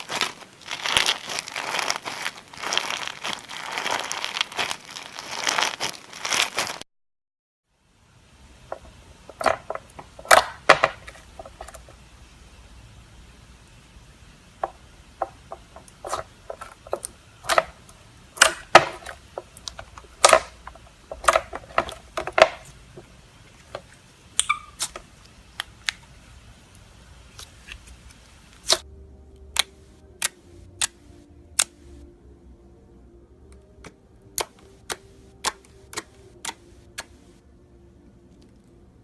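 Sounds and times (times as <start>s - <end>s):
faint steady hum: 7.7s - 39.0s
slime clicking and popping: 18.4s - 20.5s.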